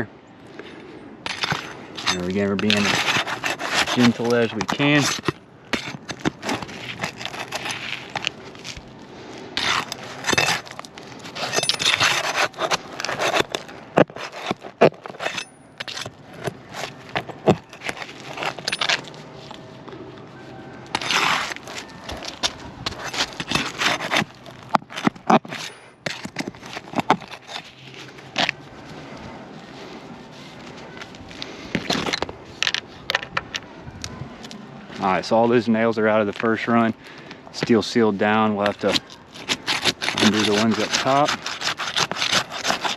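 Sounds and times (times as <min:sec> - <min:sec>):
scraping of roof shingles: 0:01.3 - 0:19.5, 0:20.9 - 0:29.2, 0:37.6 - 0:42.9.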